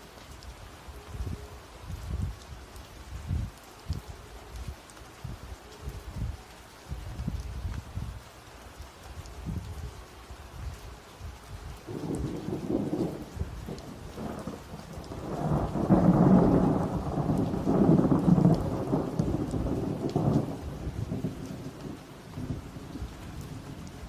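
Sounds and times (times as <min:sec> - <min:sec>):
rain falling: 0:00.0 - 0:24.0
rolling thunder: 0:11.9 - 0:23.9.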